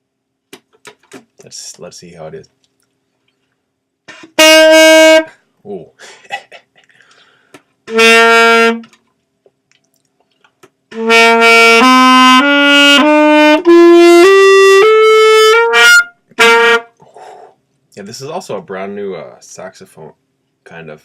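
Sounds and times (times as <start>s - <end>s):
saxophone playing scale: 4.1s - 5.4s, 7.9s - 8.9s, 10.9s - 17.0s.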